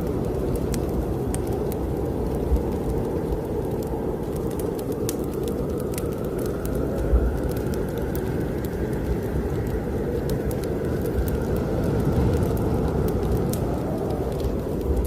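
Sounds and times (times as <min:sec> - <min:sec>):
snowstorm wind roaring: 0:00.0 - 0:15.0
wood fire crackling: 0:00.0 - 0:15.0.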